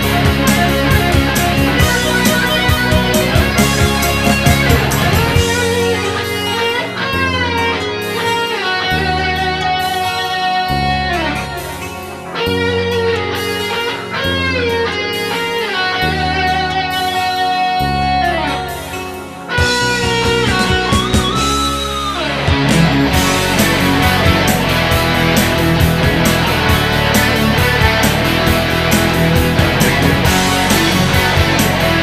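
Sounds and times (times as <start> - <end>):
bass line: 0.0 - 8.0, 19.6 - 32.0
electric guitar solo: 0.0 - 32.0.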